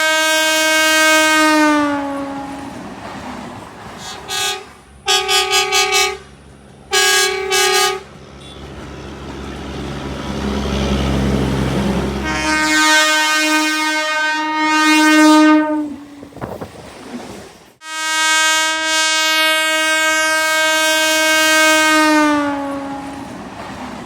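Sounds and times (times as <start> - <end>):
train horn blasts: 0.0 - 2.8, 4.0 - 8.8, 12.1 - 16.1, 17.8 - 23.4.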